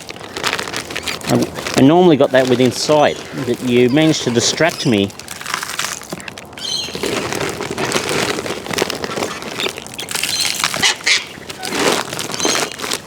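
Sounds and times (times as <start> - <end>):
parrots crunching food: 0.0 - 13.0
parrot squawks: 10.2 - 11.7.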